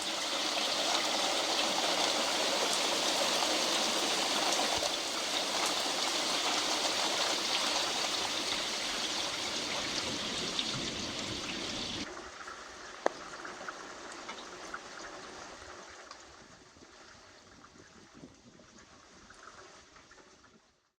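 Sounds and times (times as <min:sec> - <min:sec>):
heavy rain falling: 0:00.0 - 0:12.0
rain patter with clicks: 0:00.0 - 0:20.8.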